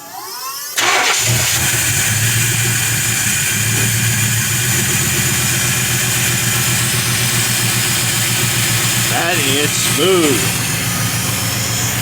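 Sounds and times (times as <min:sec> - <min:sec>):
truck engine idling: 0:00.8 - 0:12.0.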